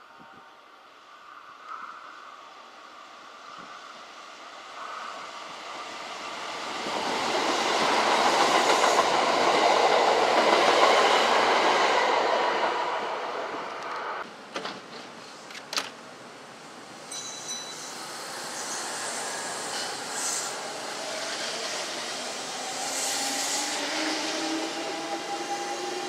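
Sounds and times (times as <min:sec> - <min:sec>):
electric train passing: 0:00.6 - 0:14.2, 0:16.4 - 0:26.0.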